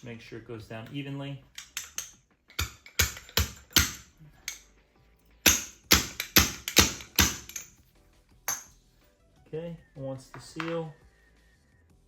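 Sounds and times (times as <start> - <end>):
seal driver striking metal: 1.6 - 4.7, 5.4 - 7.7.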